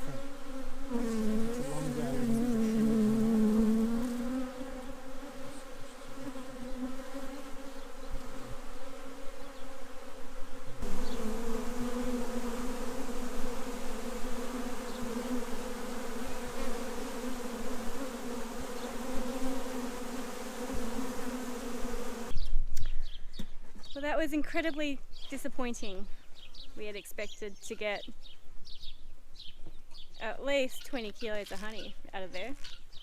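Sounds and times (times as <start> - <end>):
honeybees buzzing: 0.0 - 22.4.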